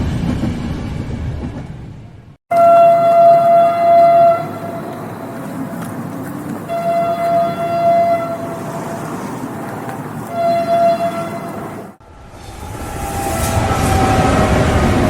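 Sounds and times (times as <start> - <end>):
passing train rumble: 0.0 - 15.0
train horn blasts: 2.5 - 5.0, 6.7 - 9.1, 10.3 - 11.6, 12.5 - 15.0.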